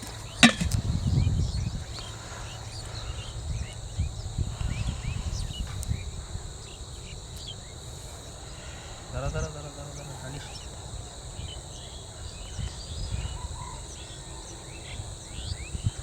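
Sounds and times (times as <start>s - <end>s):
low thuds: 0.0s - 2.0s
insects chirping: 0.0s - 16.0s.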